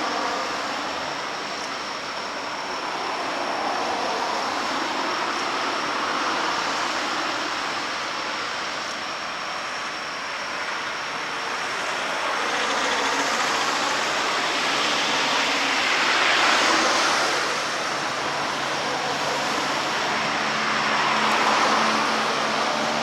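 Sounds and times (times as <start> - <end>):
road vehicle noise: 0.0 - 23.0.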